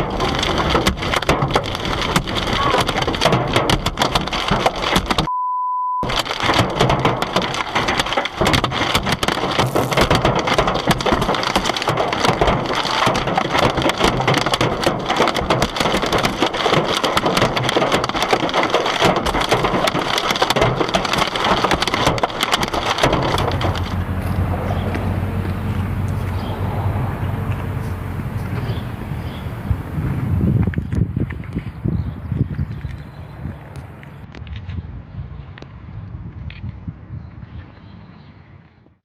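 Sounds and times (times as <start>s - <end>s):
hailstones pelting a car: 0.0s - 5.3s, 6.0s - 30.9s
censor bleep tone: 5.3s - 6.1s.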